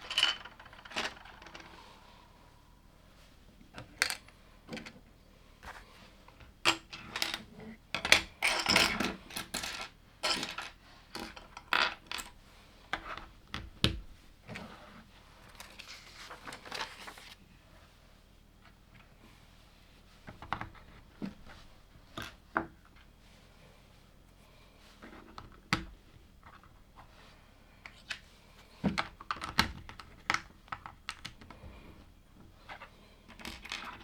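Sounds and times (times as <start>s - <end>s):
plastic pieces clicking: 0.0s - 1.8s
loose pieces rattling: 0.0s - 2.0s.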